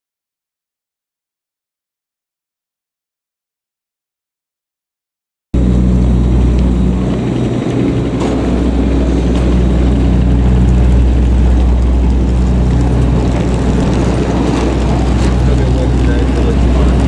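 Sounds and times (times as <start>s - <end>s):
airliner cabin drone: 5.6s - 17.0s.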